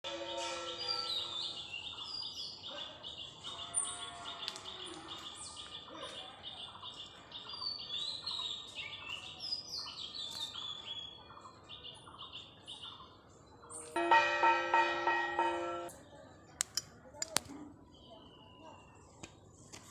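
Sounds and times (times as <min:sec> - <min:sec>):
birds chirping: 0:00.1 - 0:15.9.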